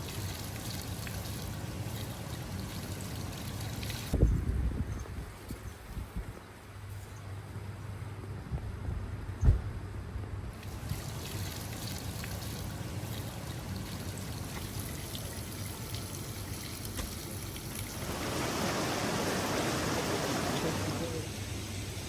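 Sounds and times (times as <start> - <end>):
water trickling: 0.0 - 4.2, 10.5 - 21.4.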